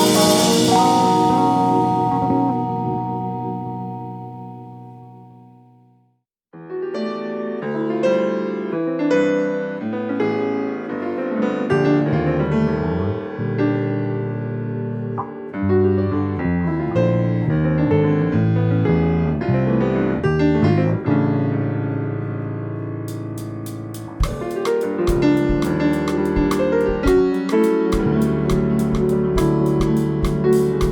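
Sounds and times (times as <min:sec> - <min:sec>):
jazz fusion band playing: 0:00.0 - 0:03.6, 0:23.1 - 0:30.9
bass line: 0:00.0 - 0:05.3, 0:23.1 - 0:27.3
keyboard chords: 0:00.0 - 0:06.0, 0:14.8 - 0:15.6, 0:23.1 - 0:30.9.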